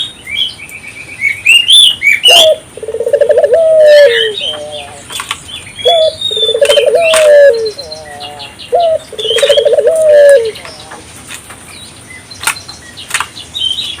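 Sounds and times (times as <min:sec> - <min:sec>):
small birds chirping: 0:00.0 - 0:14.0
dove cooing: 0:02.2 - 0:05.2, 0:05.8 - 0:11.0.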